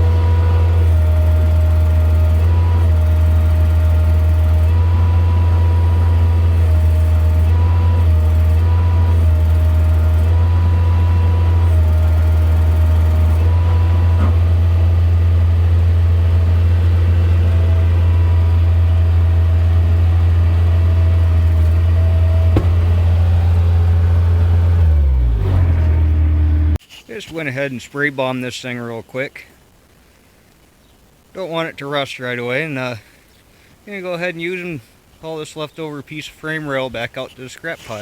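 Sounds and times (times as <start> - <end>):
engine droning: 0.0 - 26.8
loader whine switching pitch: 0.0 - 26.8.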